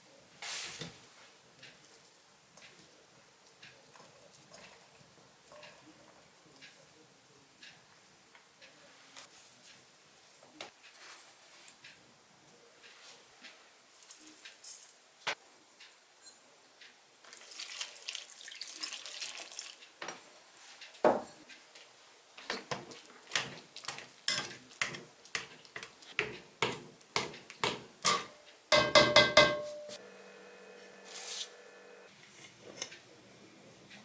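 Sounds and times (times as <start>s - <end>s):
metallic clatter of pots: 27.7s - 30.0s.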